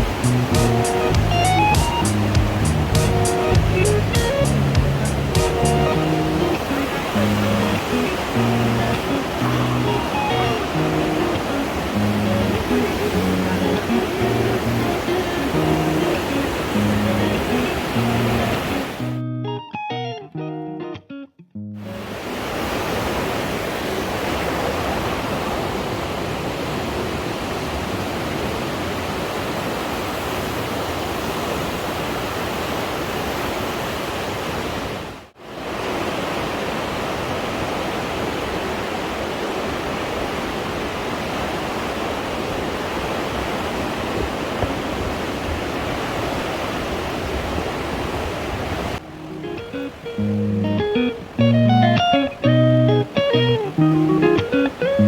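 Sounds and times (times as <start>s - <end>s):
river water rushing: 0.0s - 19.1s, 21.9s - 55.0s.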